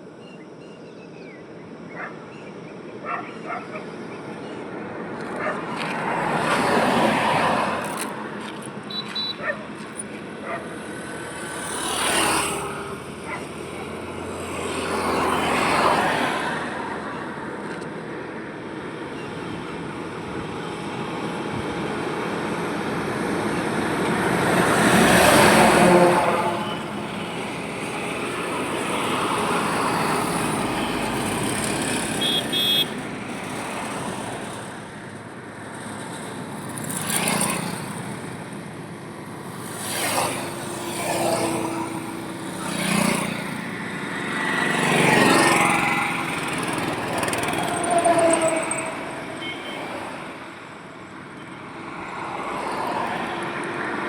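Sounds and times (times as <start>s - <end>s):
vehicles passing on highway: 0.0s - 54.0s
vehicle horn toot: 8.9s - 9.5s, 25.8s - 27.5s, 32.2s - 33.0s, 47.7s - 50.0s.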